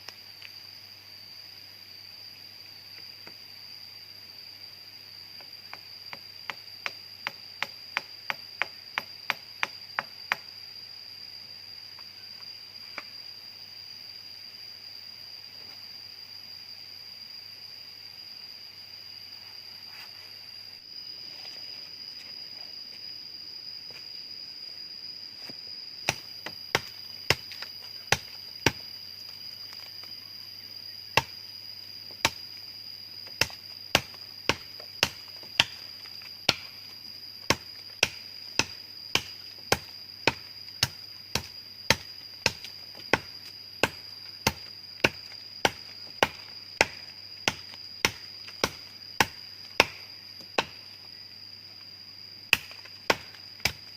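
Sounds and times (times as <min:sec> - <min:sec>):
high-pitched insect drone: 0:00.0 - 0:53.9
blade chopping wood: 0:26.0 - 0:28.8, 0:33.3 - 0:35.8, 0:36.5 - 0:36.8, 0:37.5 - 0:50.8, 0:52.5 - 0:53.9.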